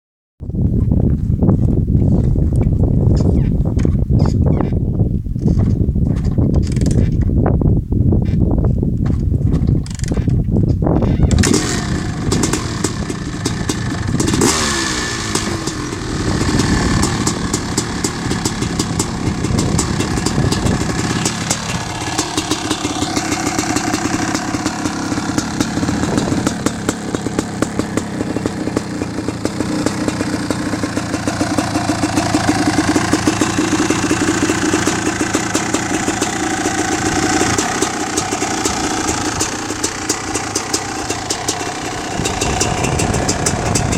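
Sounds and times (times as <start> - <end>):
motorcycle engine revving and idling: 9.0 - 43.9.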